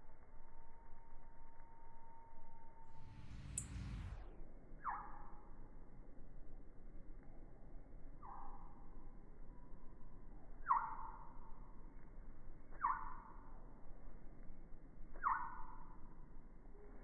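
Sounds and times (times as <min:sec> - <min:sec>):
bird calling: 0:15.2 - 0:15.8.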